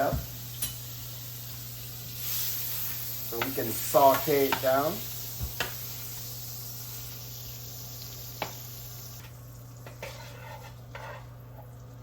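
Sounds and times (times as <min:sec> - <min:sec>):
butter sizzling in a pot: 0:00.0 - 0:12.0.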